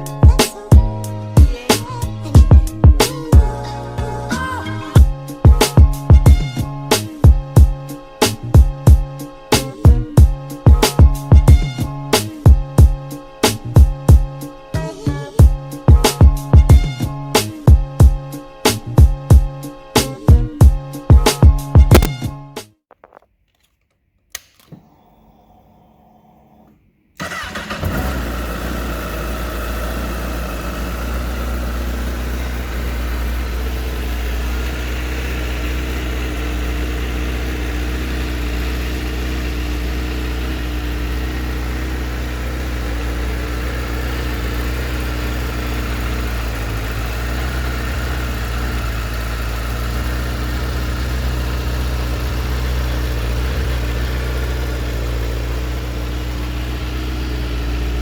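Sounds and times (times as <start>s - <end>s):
motorcycle engine idling: 27.2s - 58.0s.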